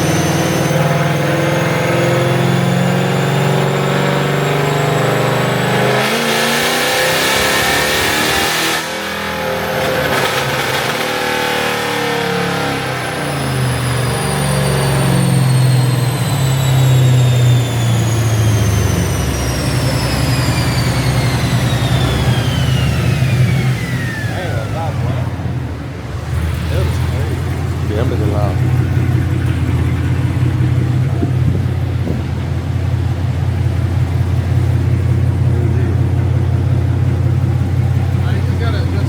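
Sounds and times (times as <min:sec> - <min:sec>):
car engine revving: 0:00.0 - 0:39.0
steady engine drone: 0:00.0 - 0:39.0
high-pitched whine falling in pitch: 0:13.6 - 0:24.6.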